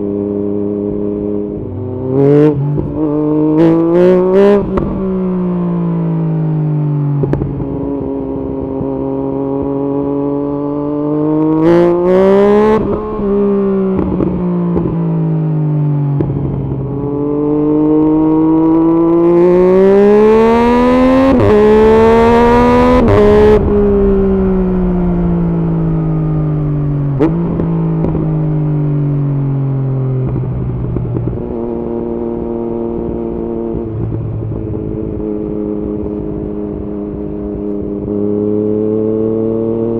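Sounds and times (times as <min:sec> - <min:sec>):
motorcycle engine revving: 0:00.0 - 0:39.9
wind rushing: 0:21.6 - 0:28.8
exhaust pops: 0:23.0 - 0:28.4.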